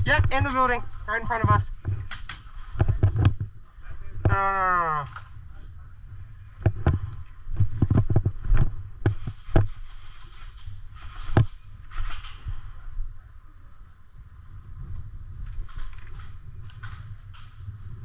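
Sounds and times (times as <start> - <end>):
brief rustle: 6.8 - 12.9, 15.4 - 18.0.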